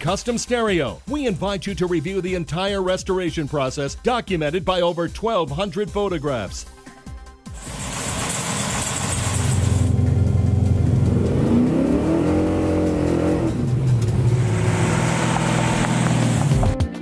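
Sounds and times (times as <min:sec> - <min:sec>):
loud engine revving: 0:07.6 - 0:16.7.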